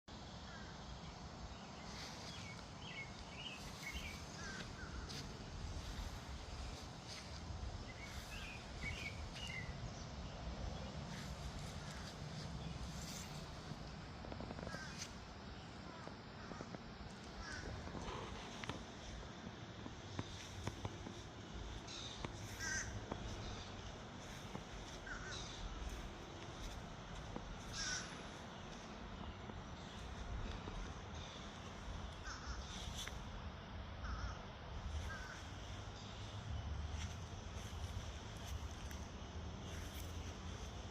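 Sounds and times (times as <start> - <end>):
low background noise: 0.1 - 40.9
low outdoor rumble: 0.1 - 40.9
bird calling: 1.9 - 10.0, 14.4 - 18.8, 20.2 - 33.2, 34.0 - 36.3.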